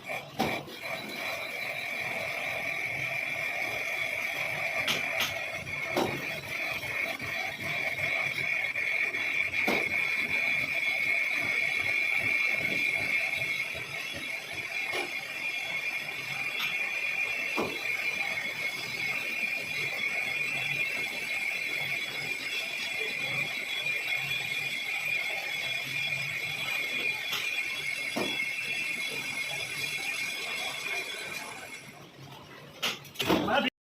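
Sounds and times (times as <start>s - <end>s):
lathe cutting metal whine: 0.0s - 32.2s.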